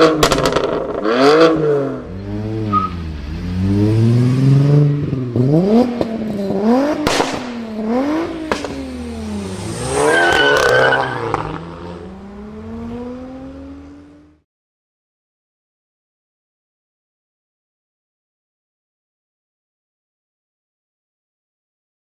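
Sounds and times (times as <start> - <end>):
exhaust pops: 0.0 - 1.0, 7.0 - 7.7, 8.4 - 8.9
sports car engine revving: 0.0 - 14.4.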